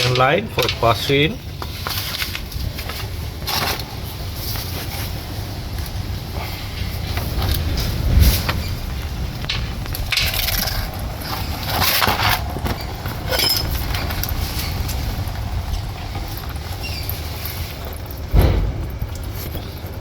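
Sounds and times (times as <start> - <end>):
steady low rumble: 0.0 - 20.0
spanner and metal parts clinking: 9.5 - 14.2.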